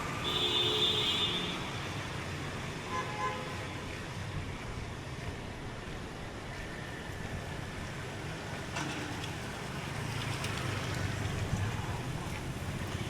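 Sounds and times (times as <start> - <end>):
road traffic: 0.0 - 13.0
vehicle horn: 0.2 - 1.7.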